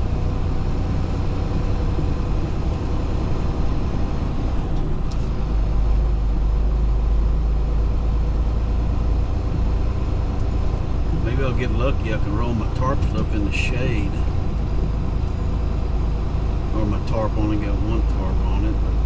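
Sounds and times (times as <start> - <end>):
road noise: 0.0 - 19.0
truck engine rumble: 0.0 - 19.0.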